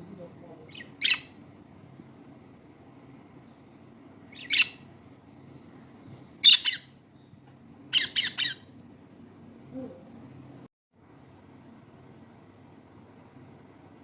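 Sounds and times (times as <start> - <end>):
faint low hum: 0.0 - 14.0
lovebirds squawking: 4.4 - 4.8, 7.9 - 8.7.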